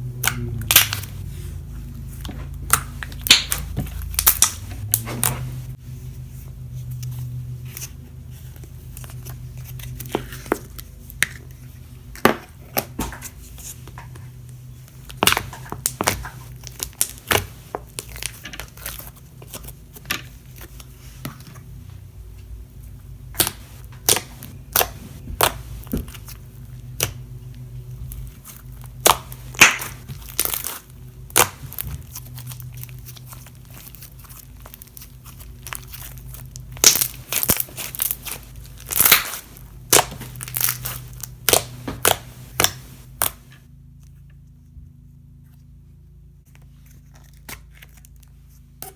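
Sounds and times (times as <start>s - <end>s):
steady low hum: 0.0s - 48.9s
material crinkling and tearing: 14.9s - 21.6s, 23.4s - 43.5s, 46.5s - 48.9s.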